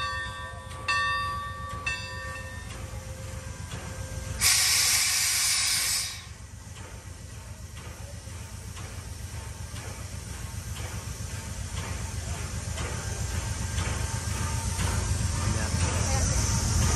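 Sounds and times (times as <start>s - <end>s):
locomotive bell ringing: 0.0s - 4.5s
steam hissing: 2.1s - 16.9s
low engine rumble: 6.2s - 16.9s.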